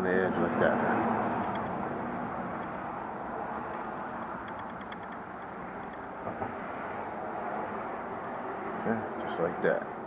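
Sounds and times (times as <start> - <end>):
steady background noise: 0.0 - 10.0
small knock: 5.8 - 6.6.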